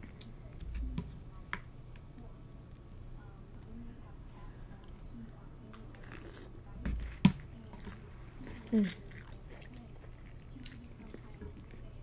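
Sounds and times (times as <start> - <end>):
person chewing noodles: 7.8 - 11.9.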